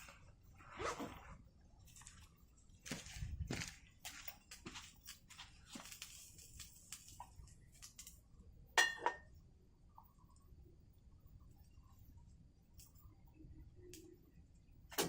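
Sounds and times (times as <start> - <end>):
metal clinking against pot: 8.8 - 9.3.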